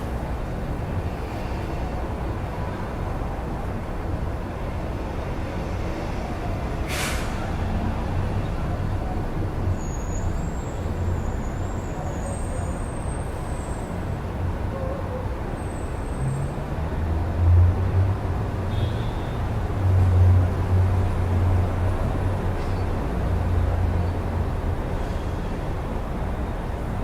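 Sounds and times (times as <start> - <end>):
city road traffic rumble: 0.0 - 27.0
faint high squeal: 9.7 - 13.9.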